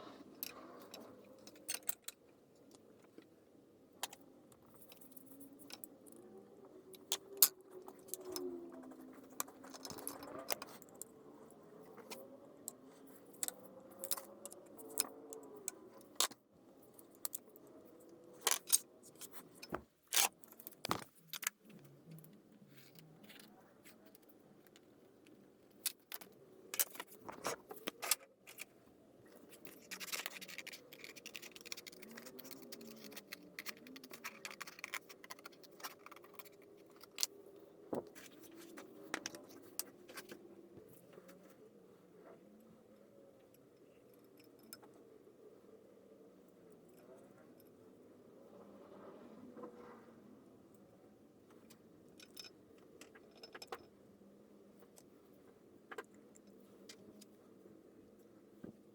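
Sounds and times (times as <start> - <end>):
metal parts clicking and clinking: 0.4 - 2.8, 6.9 - 11.1, 11.8 - 17.6, 18.2 - 22.2, 25.6 - 40.4, 52.1 - 53.9.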